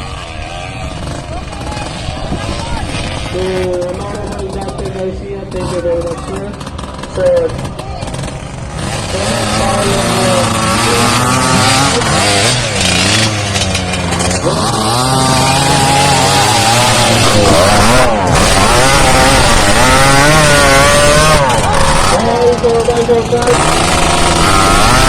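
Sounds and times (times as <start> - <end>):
engines revving hard: 0.0 - 25.0
high-revving small motor buzzing: 0.0 - 25.0.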